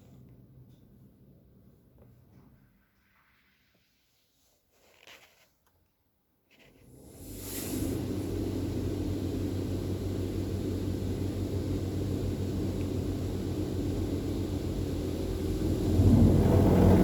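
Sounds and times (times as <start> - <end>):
car wash machinery humming: 6.9 - 17.0.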